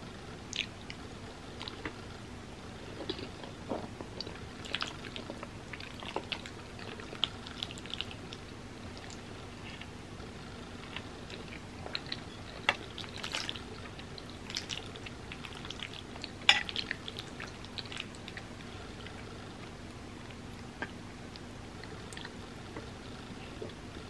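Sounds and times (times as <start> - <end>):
wet chewing mouth sounds: 0.5 - 1.0.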